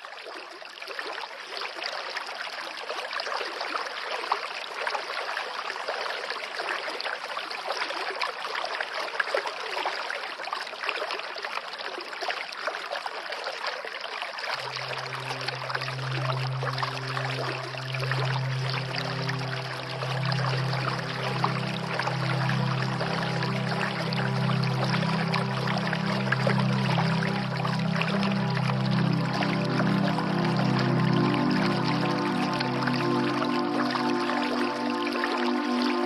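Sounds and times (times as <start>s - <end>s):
stream trickling: 0.0s - 36.0s
low musical drone: 14.6s - 36.0s.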